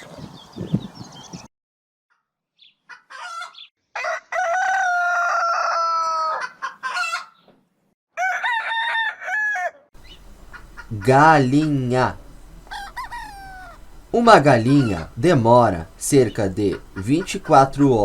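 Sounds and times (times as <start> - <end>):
rooster crowing: 3.1 - 7.4, 8.2 - 10.9, 12.5 - 14.0
chickens clucking: 6.4 - 7.6, 10.0 - 18.0.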